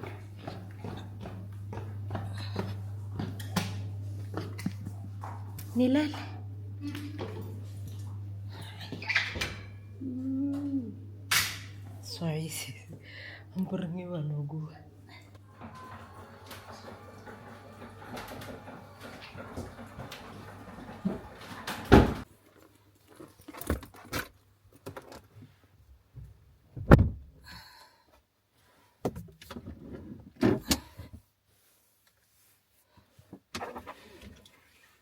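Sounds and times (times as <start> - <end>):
objects knocking and clunking: 0.0 - 9.9, 15.3 - 22.3
rustling and rattling: 15.4 - 25.4.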